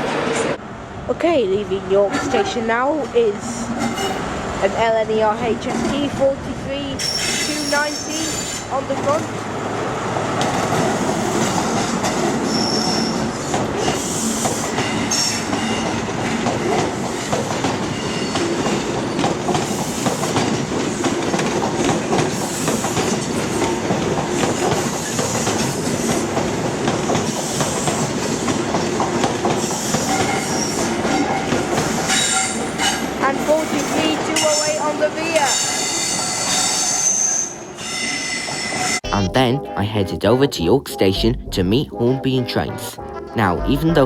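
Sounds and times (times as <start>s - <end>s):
diesel train running past: 0.0s - 39.0s
wheels clacking on rails: 1.8s - 37.2s
high wheel squeals: 7.0s - 8.8s, 12.4s - 15.9s, 29.6s - 33.0s, 35.5s - 39.0s.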